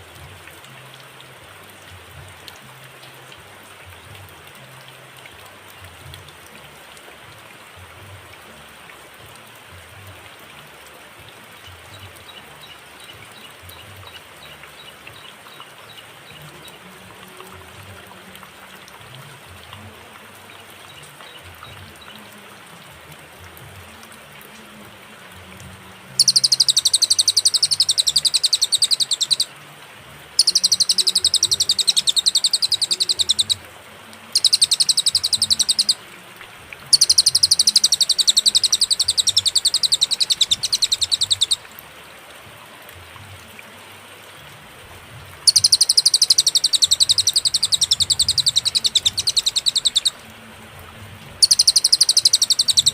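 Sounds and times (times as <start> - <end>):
bird singing rapid trills: 26.2 - 29.5, 30.4 - 33.6, 34.4 - 36.0, 36.9 - 41.6, 45.5 - 50.2, 51.4 - 52.9.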